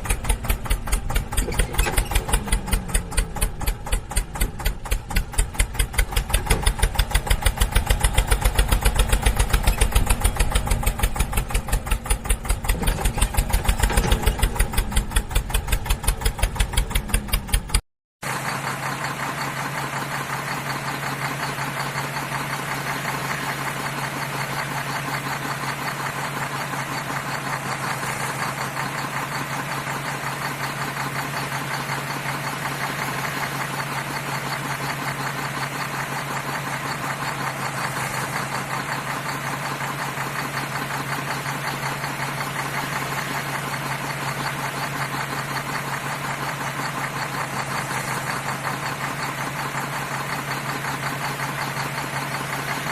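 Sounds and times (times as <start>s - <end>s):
tractor engine idling: 0.0s - 52.9s.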